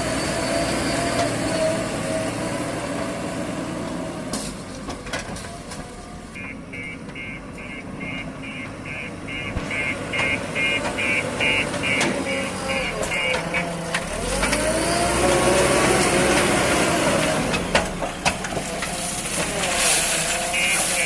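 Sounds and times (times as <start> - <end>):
diesel engine running: 0.0 - 21.0
reversing alarm beeping: 6.4 - 13.7.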